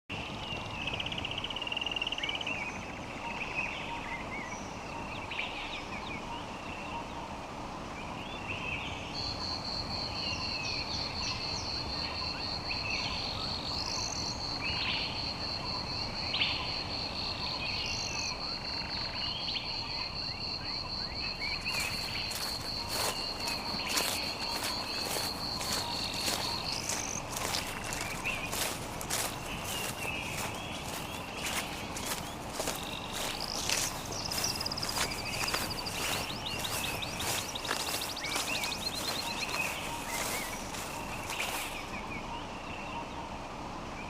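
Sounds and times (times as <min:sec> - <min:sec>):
birds calling: 0:17.5 - 0:43.4
high pulsing insect trill: 0:20.2 - 0:41.9.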